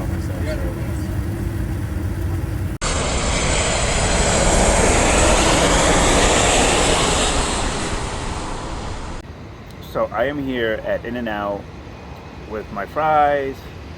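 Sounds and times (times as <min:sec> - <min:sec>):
steady low rumble: 0:00.0 - 0:09.6
jet airliner passing overhead: 0:00.0 - 0:13.9.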